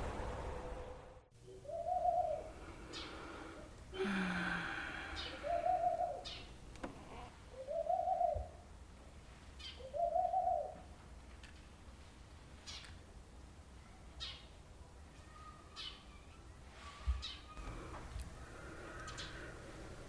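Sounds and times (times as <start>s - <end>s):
steady background hum: 0.0s - 13.8s, 17.6s - 20.0s
bird hooting calls: 1.4s - 8.6s, 9.6s - 10.9s, 18.5s - 19.6s.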